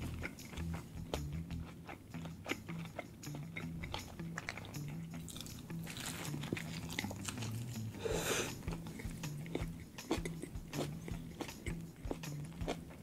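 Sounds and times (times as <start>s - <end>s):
biting and chewing burger: 0.0s - 13.0s
wet mouth clicks and smacks: 0.1s - 7.9s, 8.5s - 13.0s
breathy rush: 7.9s - 9.1s.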